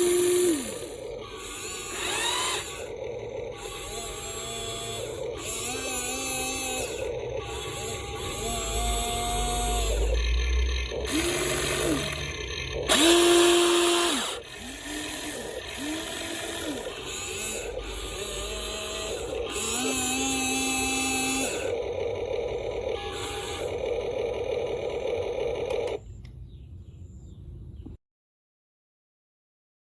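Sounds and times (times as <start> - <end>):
small electric motors whining: 0.0 - 26.0.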